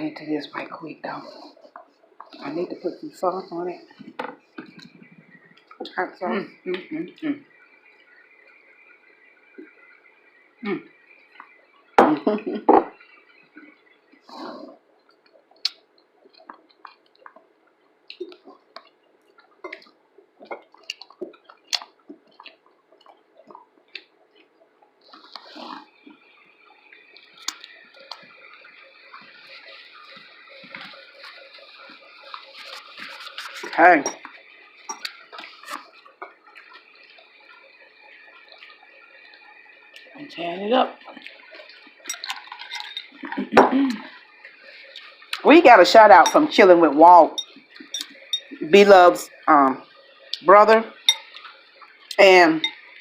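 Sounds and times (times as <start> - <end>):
faint steady hiss: 0.0 - 53.0
person chewing with wet smacking: 3.9 - 6.0, 13.0 - 40.2, 41.0 - 45.4, 47.4 - 48.6, 50.2 - 53.0
sharp mouth clicks: 15.6 - 15.8, 20.8 - 22.6.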